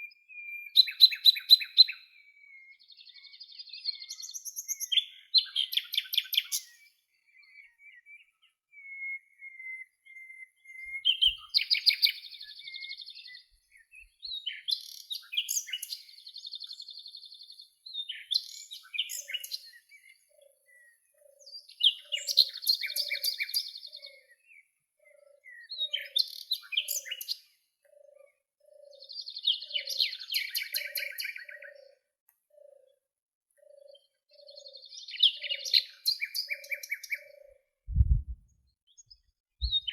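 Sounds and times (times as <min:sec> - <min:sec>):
songbirds chirping and trilling: 0:00.0 - 0:37.8, 0:38.7 - 0:39.9
soft low repeating note: 0:37.9 - 0:38.5.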